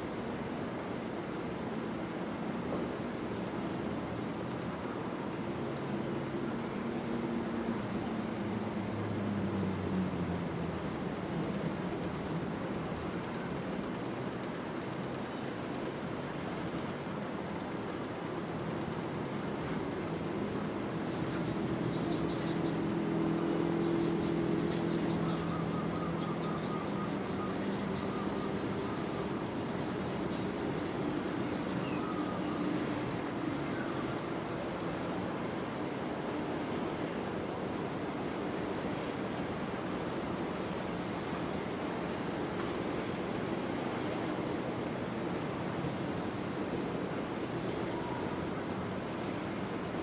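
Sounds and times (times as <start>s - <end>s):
vehicle engine hum: 21.5s - 25.7s.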